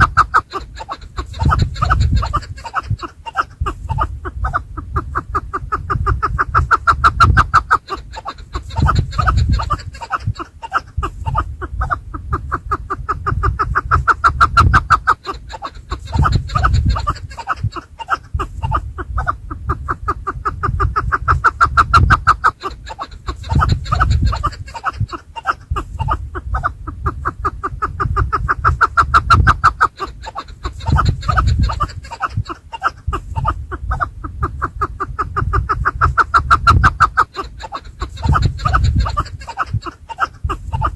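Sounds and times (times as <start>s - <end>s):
low rumble: 3.7s - 7.5s, 11.0s - 14.8s, 33.1s - 37.0s.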